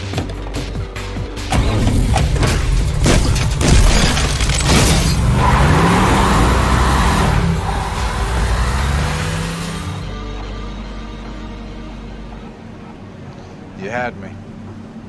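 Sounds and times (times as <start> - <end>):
car engine revving: 4.1 - 10.7.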